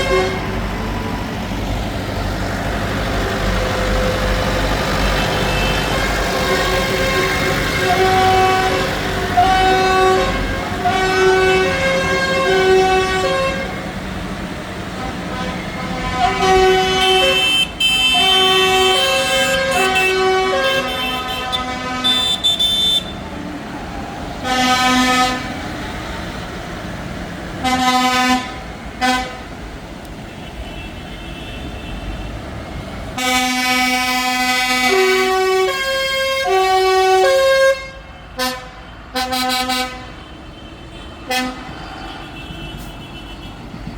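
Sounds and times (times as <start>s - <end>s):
tractor horns playing notes: 0.0s - 0.9s, 2.8s - 14.0s, 14.9s - 23.3s, 24.4s - 26.1s, 27.6s - 29.5s, 33.2s - 43.7s
tractor engines rumbling: 0.0s - 43.9s.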